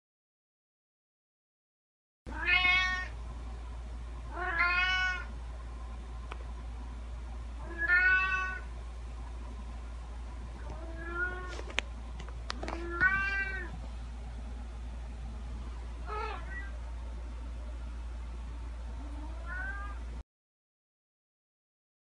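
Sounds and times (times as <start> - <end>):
cat meowing: 2.3 - 3.1, 4.3 - 5.3, 7.6 - 8.7, 10.7 - 11.5, 12.6 - 13.8, 16.0 - 16.8, 19.1 - 20.0
steady low hum: 2.3 - 20.2.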